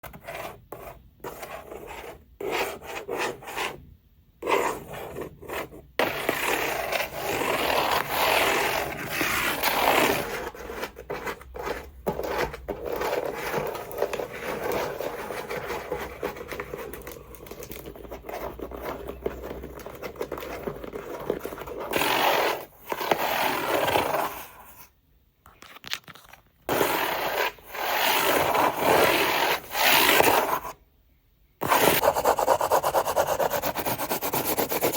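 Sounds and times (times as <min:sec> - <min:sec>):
packaging rubbing and scraping: 0:05.4 - 0:24.6
packaging clicks and taps: 0:16.8 - 0:18.0.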